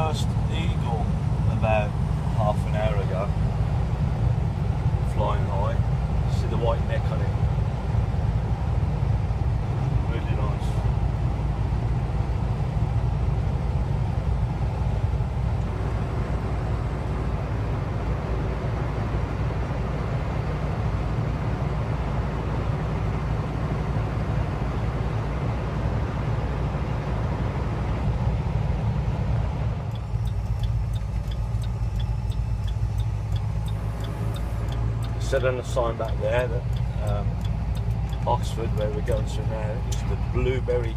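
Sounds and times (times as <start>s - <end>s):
truck engine and road rumble: 0.0s - 40.9s
regular ticking: 29.8s - 40.9s.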